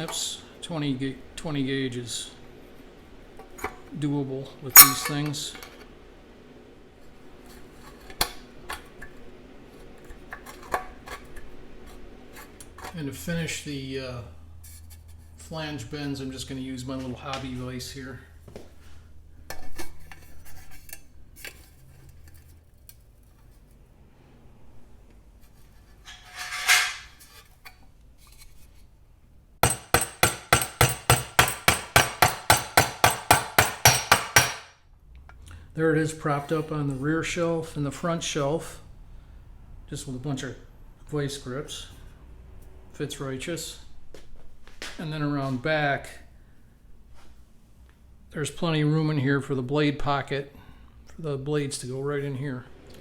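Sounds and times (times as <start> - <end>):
hammer striking sheet steel: 4.8 - 5.3, 29.6 - 34.7.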